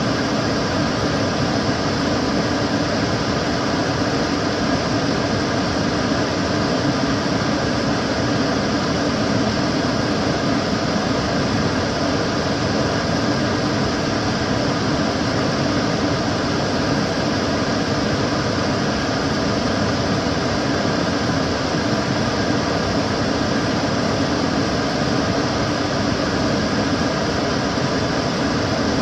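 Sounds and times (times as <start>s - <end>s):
extractor fan running: 0.0s - 29.0s.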